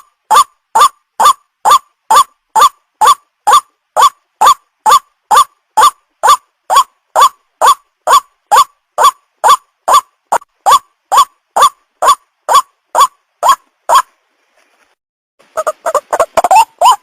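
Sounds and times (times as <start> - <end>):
waterhen calling sharp notes: 0.0 - 14.1, 15.5 - 17.0.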